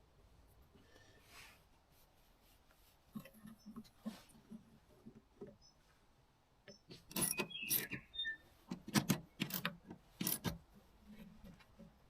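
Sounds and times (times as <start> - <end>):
brief squeak: 6.7 - 8.4
small metal parts clinking: 6.9 - 8.0, 8.9 - 10.6.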